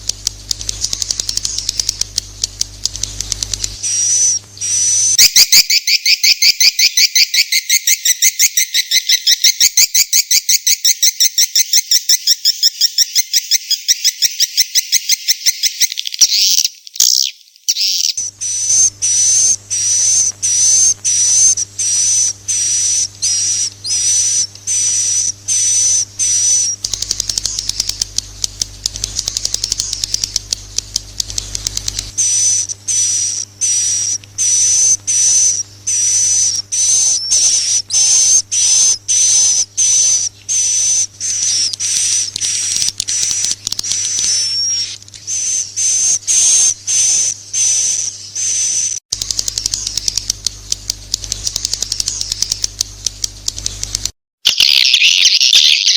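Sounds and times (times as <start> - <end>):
rapid clicking: 0.0 - 5.1, 19.8 - 36.5, 40.5 - 45.2, 49.1 - 54.2
swiftlet chirps: 17.9 - 55.9.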